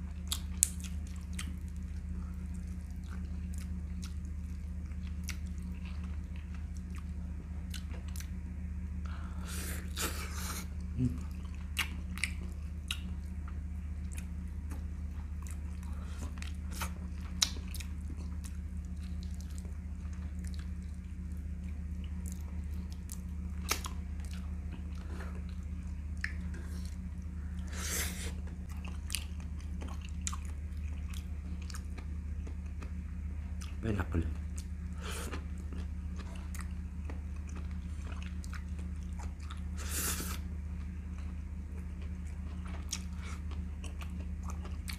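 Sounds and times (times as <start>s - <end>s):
steady low hum: 0.0s - 44.9s
person chewing and biting: 14.0s - 21.0s, 21.9s - 33.8s, 34.4s - 44.9s.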